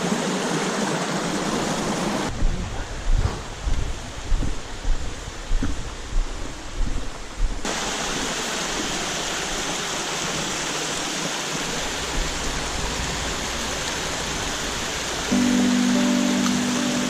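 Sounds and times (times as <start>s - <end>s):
stream water rushing: 0.0s - 2.3s, 7.7s - 17.0s
wind buffeting microphone: 2.3s - 7.7s.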